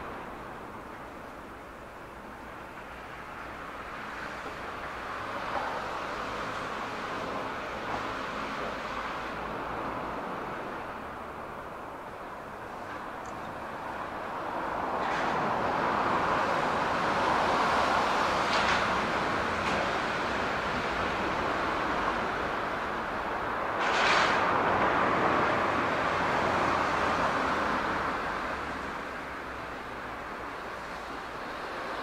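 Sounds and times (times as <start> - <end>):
train cars rolling: 11.2 - 32.0.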